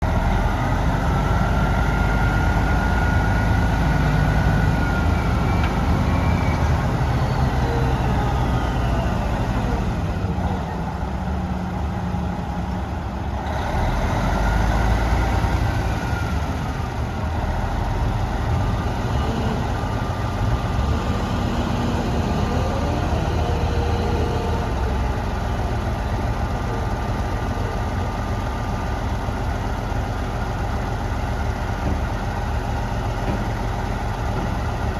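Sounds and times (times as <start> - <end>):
truck diesel engine idling: 0.0 - 34.9.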